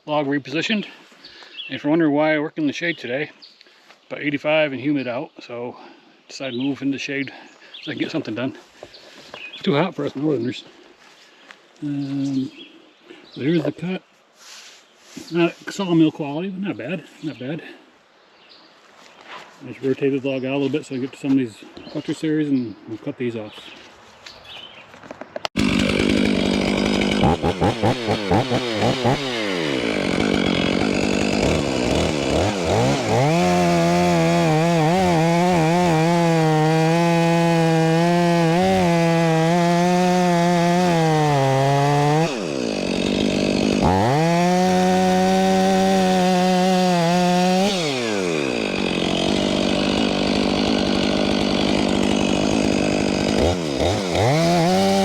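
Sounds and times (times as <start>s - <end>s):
chainsaw cutting log: 25.0s - 55.0s.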